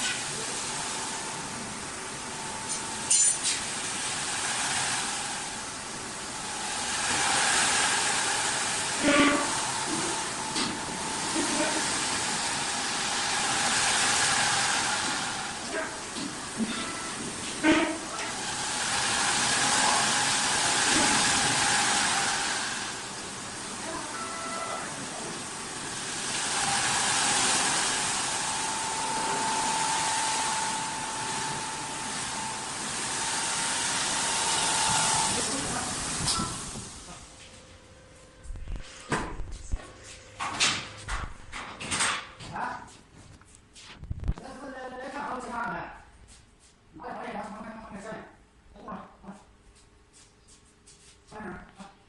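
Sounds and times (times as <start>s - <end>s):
hiss of wood cutting: 2.7s - 15.7s, 16.3s - 23.8s, 25.0s - 37.0s
wood-turning lathe running: 3.8s - 36.3s
short pitched squeal: 16.6s - 18.1s.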